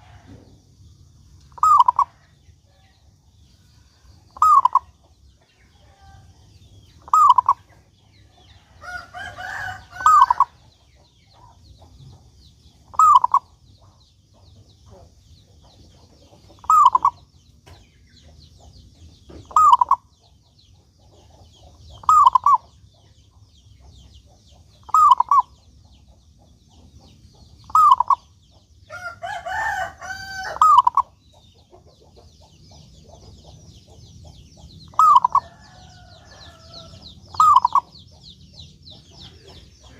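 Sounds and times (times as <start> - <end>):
dove cooing: 1.6 - 2.2, 4.4 - 4.9, 7.0 - 7.7, 8.9 - 10.6, 12.9 - 13.5, 16.6 - 17.2, 19.5 - 20.0, 22.0 - 22.6, 24.8 - 25.5, 27.7 - 28.2, 29.5 - 31.1, 34.9 - 37.9.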